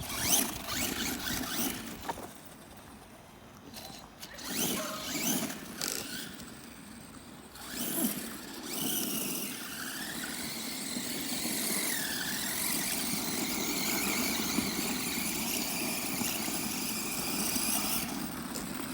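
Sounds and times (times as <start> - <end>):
toy car motor whirring and whining: 0.0 - 2.6, 3.7 - 18.9.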